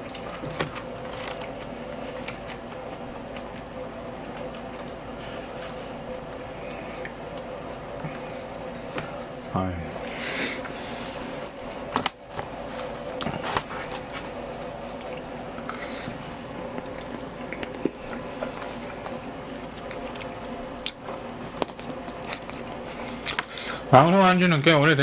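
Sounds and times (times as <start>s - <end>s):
wet chewing and biting: 15.0s - 23.6s.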